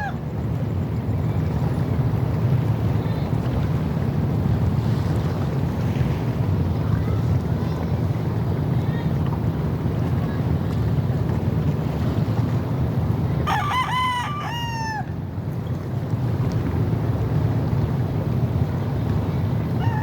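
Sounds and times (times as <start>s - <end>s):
steady low rumble: 0.0s - 20.0s
rooster crowing: 13.5s - 15.2s, 19.8s - 20.0s.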